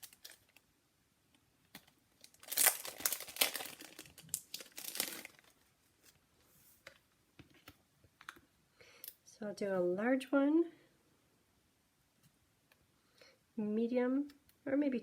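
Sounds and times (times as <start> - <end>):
plastic packaging crinkling: 0.0 - 0.7, 1.8 - 6.2.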